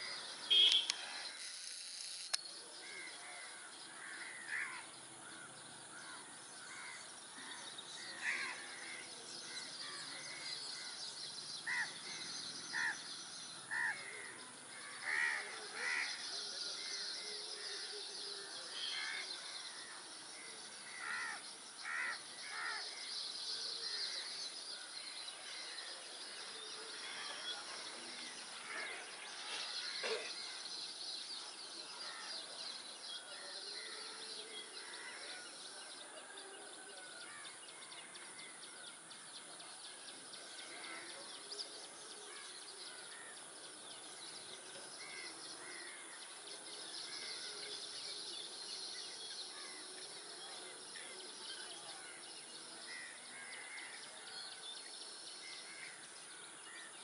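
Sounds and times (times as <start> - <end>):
harsh bird calls: 0.0 - 1.7
steady high hiss: 0.0 - 2.8.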